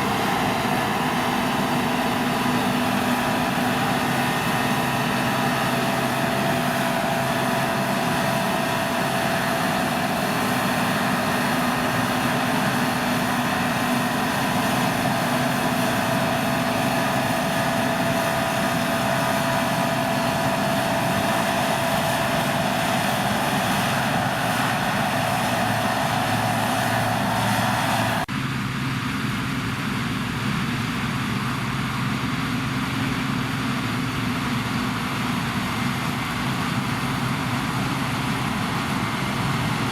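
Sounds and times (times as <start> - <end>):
combine harvester drone: 0.0 - 39.9
steady machine whine: 0.0 - 39.9.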